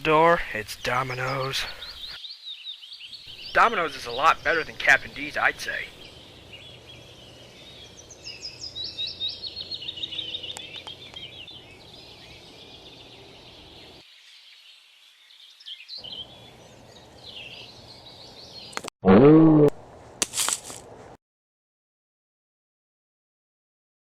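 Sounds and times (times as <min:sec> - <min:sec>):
outdoor background noise: 0:00.0 - 0:18.9, 0:19.5 - 0:21.2
small birds chirping: 0:00.0 - 0:18.9.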